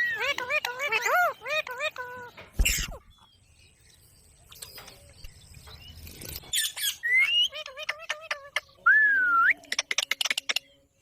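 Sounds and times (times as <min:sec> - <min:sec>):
parrot squawking: 0:00.0 - 0:03.0.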